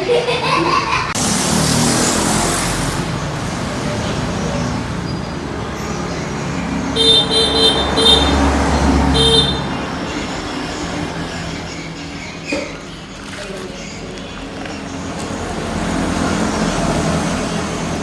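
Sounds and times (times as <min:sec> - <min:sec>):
road traffic noise: 0:00.0 - 0:18.0
vehicle horn toots: 0:06.9 - 0:09.9.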